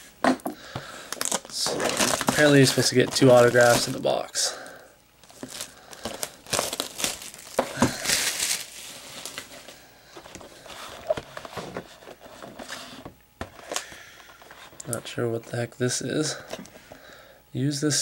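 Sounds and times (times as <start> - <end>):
packaging crinkling and tearing: 1.0 - 4.3, 5.2 - 9.8.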